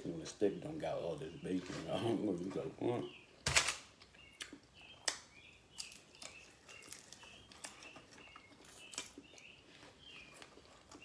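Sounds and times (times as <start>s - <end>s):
mouth clicks while chewing: 4.3s - 9.5s.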